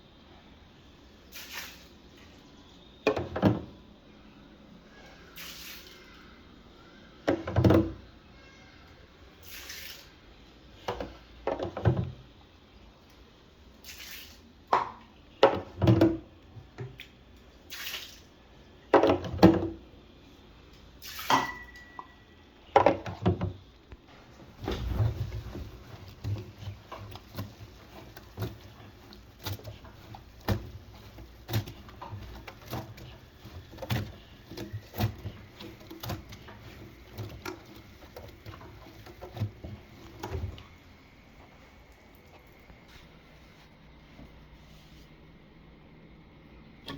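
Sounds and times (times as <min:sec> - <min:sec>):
water dripping and splashing: 0:01.3 - 0:02.4, 0:05.4 - 0:06.1, 0:09.4 - 0:10.2, 0:13.1 - 0:15.0, 0:16.9 - 0:18.4, 0:20.7 - 0:22.1, 0:24.5 - 0:42.9
knocks clicks and clatter: 0:24.5 - 0:40.7.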